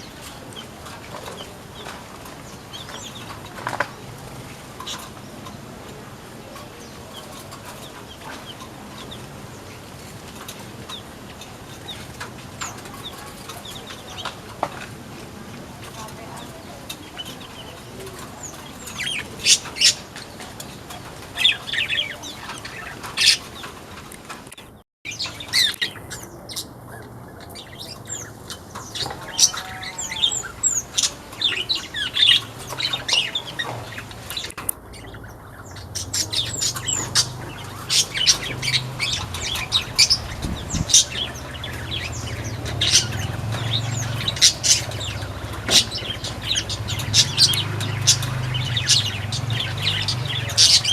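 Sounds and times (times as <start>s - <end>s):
birds chirping: 0.0s - 50.9s.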